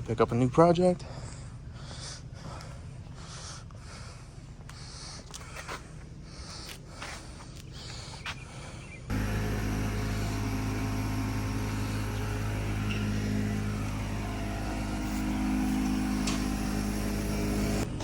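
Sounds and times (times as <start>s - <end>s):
road noise: 9.1s - 18.0s
vehicle engine hum: 9.1s - 18.0s.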